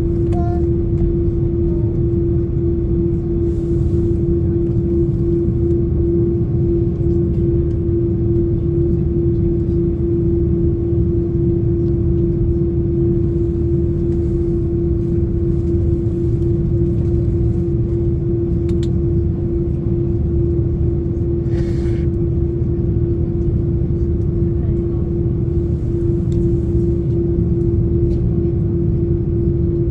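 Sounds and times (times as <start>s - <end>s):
jet engines droning in cabin: 0.0s - 29.9s.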